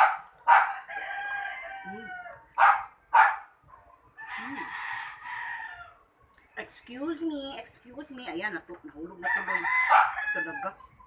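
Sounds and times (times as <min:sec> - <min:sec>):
rooster crowing: 0:00.5 - 0:02.4, 0:04.2 - 0:06.0, 0:09.2 - 0:10.8.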